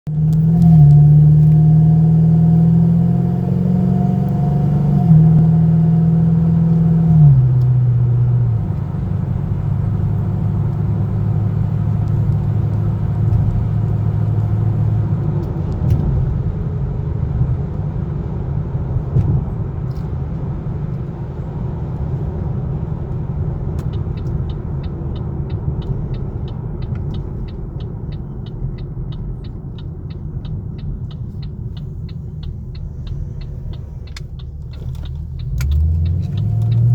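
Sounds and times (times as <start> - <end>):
car exhaust drone: 0.1 - 36.9
faint regular ticking: 23.0 - 36.9.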